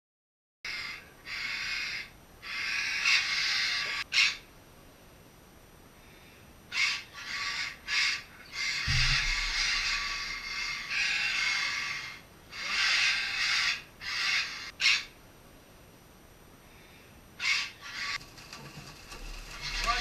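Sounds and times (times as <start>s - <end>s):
parrots squawking: 0.7s - 4.4s, 6.7s - 15.1s, 17.4s - 18.2s, 19.3s - 20.0s
low thud: 8.8s - 10.6s.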